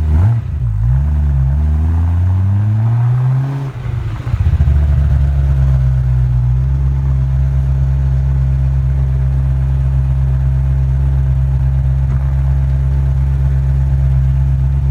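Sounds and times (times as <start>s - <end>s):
car engine idling: 0.0s - 14.9s.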